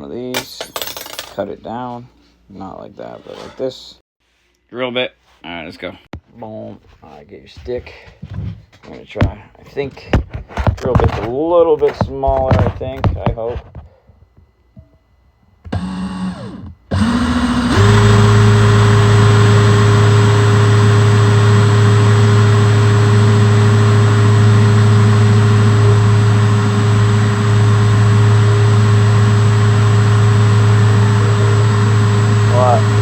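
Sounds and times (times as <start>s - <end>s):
electric drill boring into wood: 15.7s - 33.0s.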